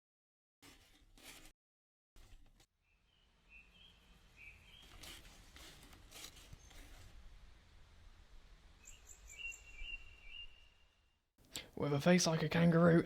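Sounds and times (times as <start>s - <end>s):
bird chirps: 2.8s - 5.0s, 8.8s - 11.0s
soft rustles: 4.8s - 7.5s.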